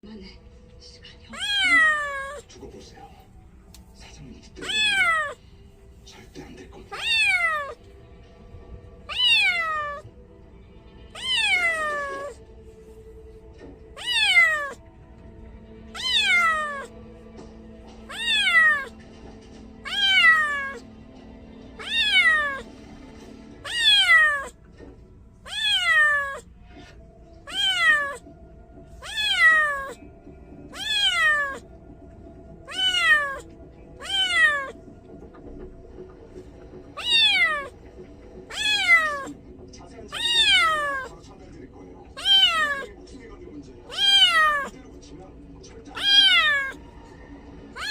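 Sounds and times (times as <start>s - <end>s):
kitten meowing: 1.3s - 2.5s, 4.6s - 5.4s, 6.9s - 7.8s, 9.1s - 10.1s, 11.2s - 12.4s, 14.0s - 14.8s, 15.9s - 16.9s, 18.0s - 19.0s, 19.8s - 20.8s, 21.8s - 22.7s, 23.6s - 24.6s, 25.4s - 26.5s, 27.4s - 28.3s, 29.0s - 30.0s, 30.7s - 31.7s, 32.6s - 34.8s, 37.0s - 37.8s, 38.5s - 39.4s, 40.1s - 41.2s, 42.2s - 43.0s, 43.9s - 44.8s, 45.9s - 46.8s.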